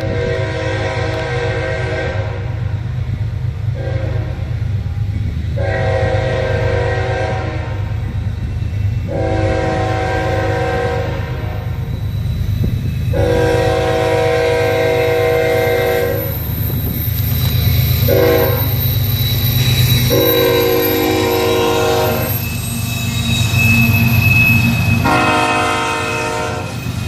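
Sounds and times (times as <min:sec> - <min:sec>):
locomotive air horn blasts: 0:00.0 - 0:02.6, 0:03.8 - 0:04.5, 0:05.6 - 0:07.9, 0:09.1 - 0:11.6, 0:13.1 - 0:16.2, 0:18.1 - 0:18.6, 0:20.1 - 0:22.3, 0:25.0 - 0:26.8
passing train rumble: 0:00.0 - 0:27.0.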